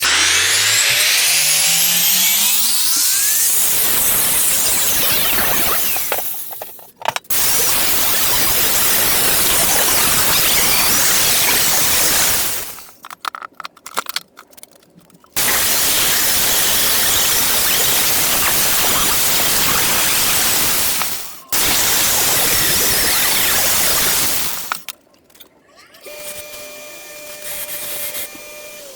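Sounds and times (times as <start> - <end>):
welding arc crackling and hissing: 0.0 - 6.7, 7.3 - 13.0, 15.4 - 24.9.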